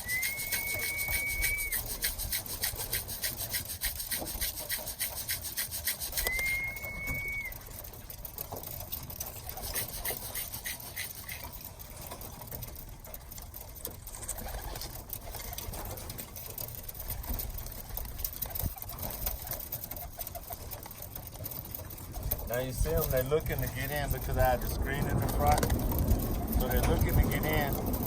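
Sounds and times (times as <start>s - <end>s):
steady whistle tone: 0.0s - 2.1s, 6.1s - 7.6s
pigeons cooing: 0.0s - 4.6s, 5.9s - 7.6s, 9.5s - 11.6s, 14.2s - 16.0s, 25.0s - 28.0s
fast rhythmic scratching: 0.0s - 12.0s, 14.0s - 28.0s.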